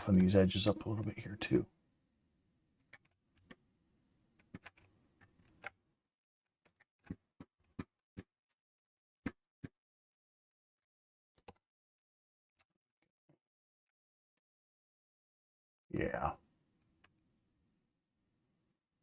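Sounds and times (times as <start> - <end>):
computer mouse clicks: 4.4 - 5.8.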